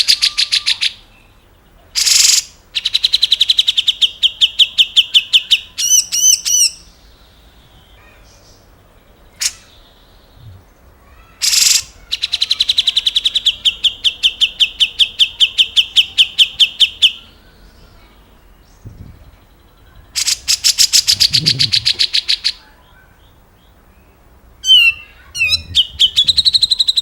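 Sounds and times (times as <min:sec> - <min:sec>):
bird rattling song: 0:02.0 - 0:03.9, 0:11.4 - 0:11.9, 0:20.1 - 0:22.6.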